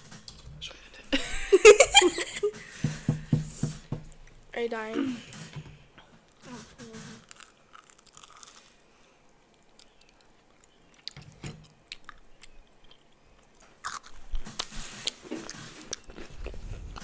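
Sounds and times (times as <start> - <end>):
person chewing and biting: 7.2 - 8.8, 9.6 - 13.1, 13.8 - 17.0.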